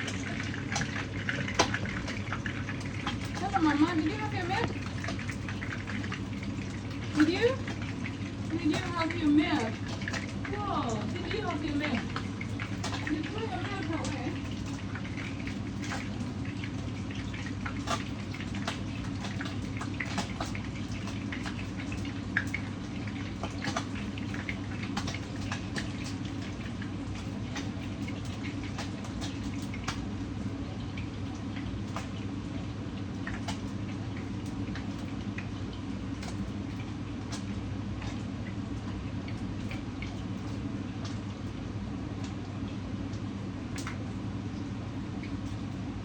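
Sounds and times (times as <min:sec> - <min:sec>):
oil spattering and popping: 0:00.0 - 0:30.2
steady low hum: 0:00.0 - 0:46.0.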